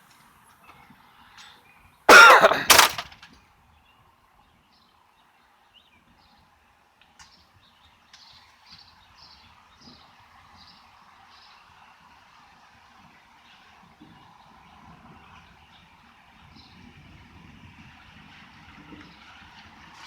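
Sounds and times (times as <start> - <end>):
person coughing: 2.1 - 3.0.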